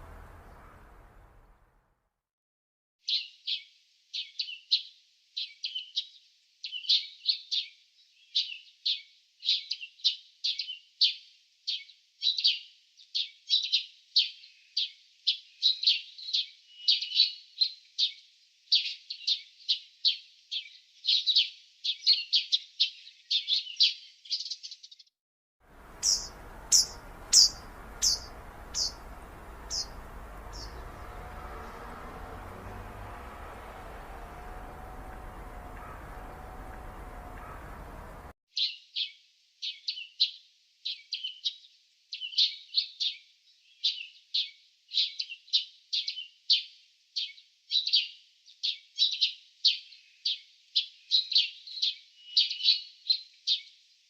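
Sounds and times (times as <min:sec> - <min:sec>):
small birds chirping: 0:00.0 - 0:01.6, 0:03.1 - 0:25.1, 0:25.7 - 0:53.8
high falling bird calls: 0:00.0 - 0:01.7, 0:25.7 - 0:38.3.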